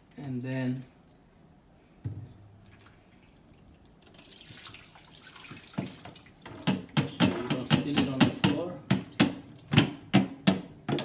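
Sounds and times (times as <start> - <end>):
water splashing and running: 4.0 - 6.5.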